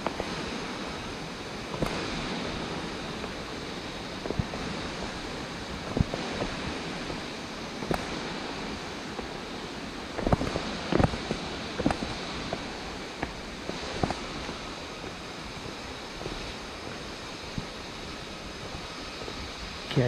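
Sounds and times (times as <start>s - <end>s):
mountain stream rushing: 0.0s - 20.0s
footsteps on rocky path: 1.6s - 20.0s.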